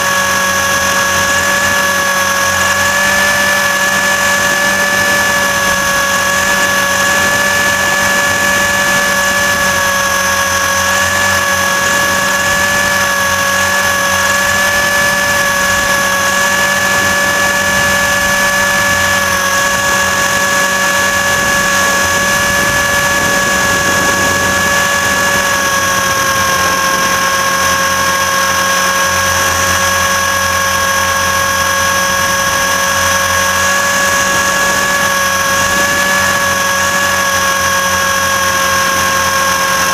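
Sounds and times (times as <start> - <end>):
helicopter motor high-pitched whine: 0.0 - 39.9.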